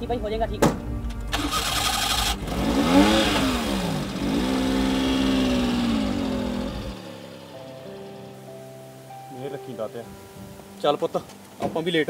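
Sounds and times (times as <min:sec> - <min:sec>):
car engine revving: 0:01.3 - 0:08.2.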